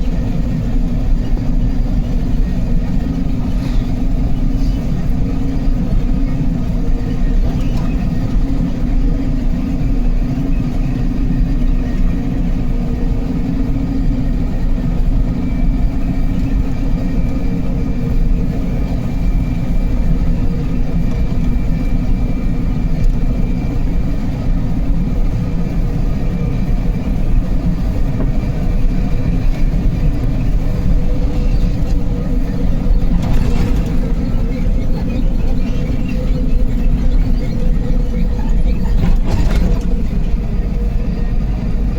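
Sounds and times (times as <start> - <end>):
truck engine and road noise: 0.0 - 41.9.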